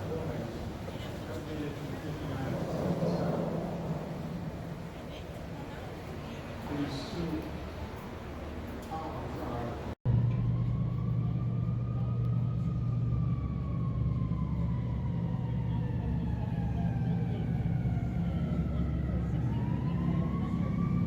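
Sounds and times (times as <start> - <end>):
low rumble: 1.7 - 6.0
siren wailing: 10.1 - 21.0.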